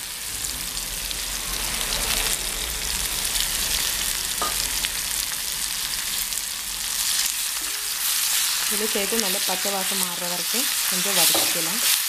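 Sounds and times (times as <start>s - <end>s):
paste sizzling in hot oil: 4.2s - 12.0s.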